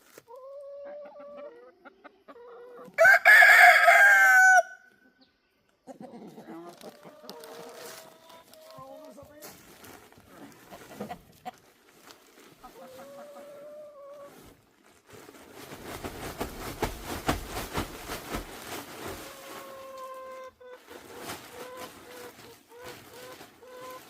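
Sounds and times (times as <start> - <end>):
chickens clucking: 0.1 - 3.0, 4.9 - 9.4, 10.2 - 11.8, 12.4 - 14.6, 18.9 - 24.0
chickens calling: 0.1 - 14.6, 18.6 - 24.0
rustling and knocking: 15.6 - 19.4.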